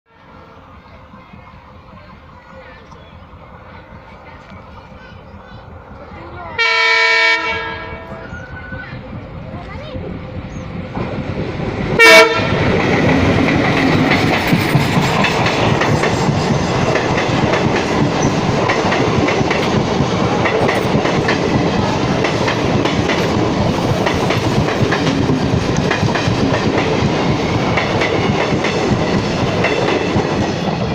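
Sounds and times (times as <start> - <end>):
passenger train rumbling: 0.1 - 30.9
train horn blast: 6.6 - 8.5, 12.0 - 12.6.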